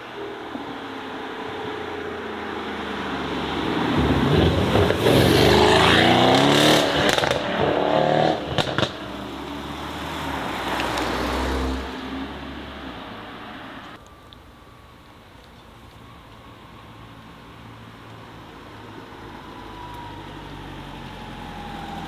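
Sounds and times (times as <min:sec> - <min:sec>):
car engine revving: 0:00.9 - 0:14.0
exhaust cracks: 0:02.7 - 0:14.5.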